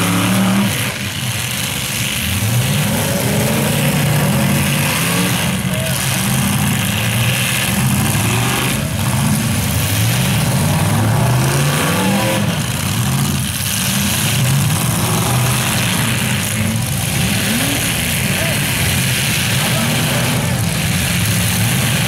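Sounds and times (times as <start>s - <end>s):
car engines revving: 0.0s - 22.0s
cars ramming each other: 0.0s - 22.0s.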